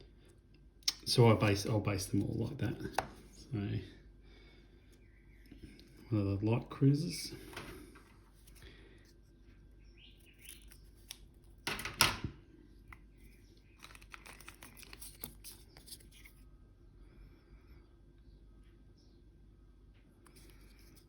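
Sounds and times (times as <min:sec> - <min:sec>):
paper rustling: 0:13.8 - 0:16.4.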